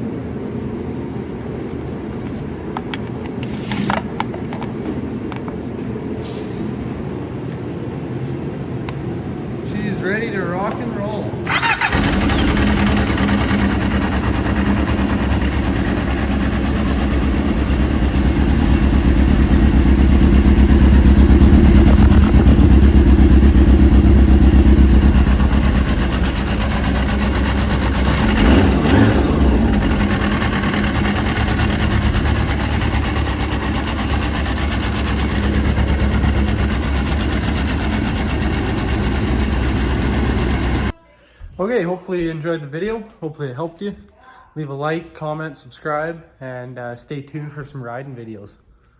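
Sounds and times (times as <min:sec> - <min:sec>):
snowmobile engine revving: 0:11.5 - 0:40.9
snowmobile engine running: 0:11.9 - 0:40.9.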